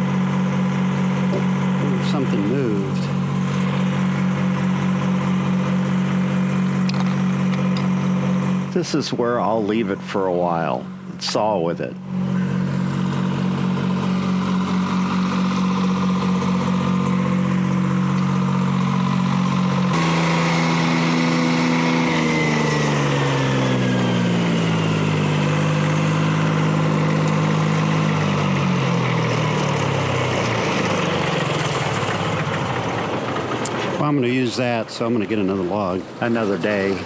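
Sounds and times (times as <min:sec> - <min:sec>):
diesel engine running: 0:00.0 - 0:37.0
high whine: 0:08.3 - 0:16.0.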